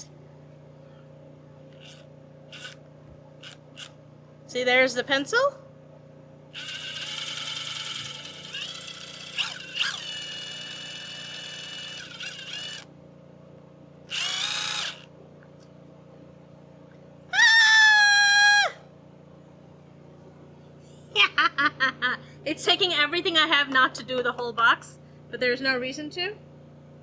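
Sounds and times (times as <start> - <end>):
cordless drill whining: 1.7 - 4.0, 6.6 - 12.9, 14.1 - 15.1.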